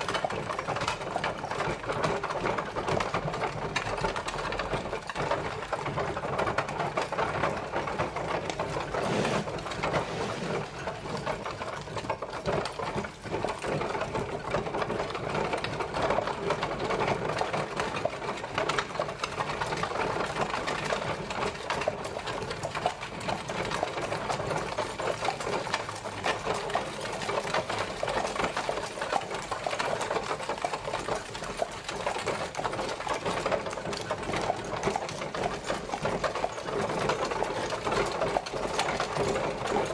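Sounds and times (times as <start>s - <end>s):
carriage rattling as it rolls: 0.0s - 39.9s.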